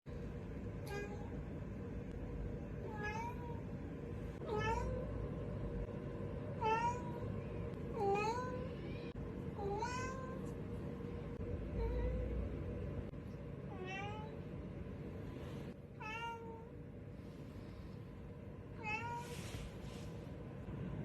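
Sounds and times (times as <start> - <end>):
low background hum: 0.1 - 21.0
cat meowing: 2.9 - 3.6, 4.4 - 5.0, 6.6 - 10.5, 13.7 - 14.4, 16.0 - 16.7, 18.8 - 19.4.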